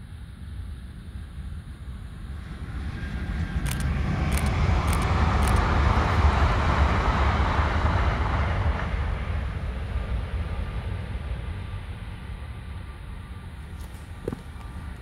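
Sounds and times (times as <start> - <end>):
steady low rumble: 0.0 - 15.0
train rushing past: 2.3 - 13.6.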